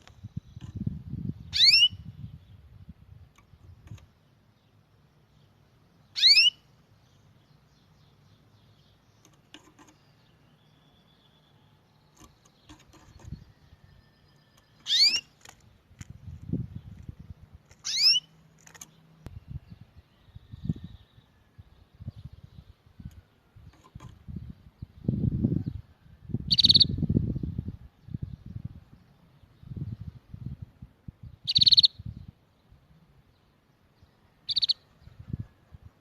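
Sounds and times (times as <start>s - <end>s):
songbird high calls: 1.4s - 2.5s, 6.0s - 6.7s, 9.9s - 15.3s, 17.8s - 18.3s, 26.5s - 27.2s, 31.4s - 32.2s, 34.4s - 35.3s.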